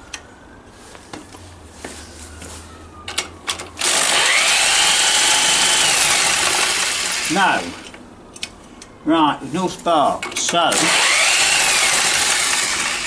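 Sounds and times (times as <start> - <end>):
starter motor cranking engine: 3.8 - 7.4, 10.7 - 13.0.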